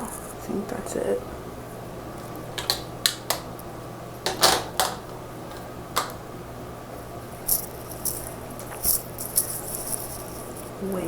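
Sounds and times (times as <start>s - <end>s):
steady low hum: 0.0s - 11.0s
small objects clicking and tapping: 2.2s - 3.5s, 7.4s - 10.8s.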